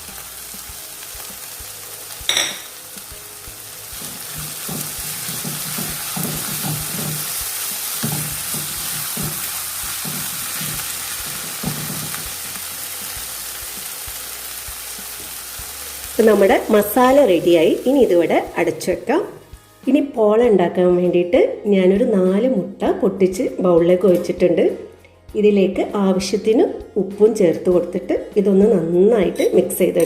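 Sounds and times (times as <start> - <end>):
onions sizzling in oil: 0.0 - 19.1.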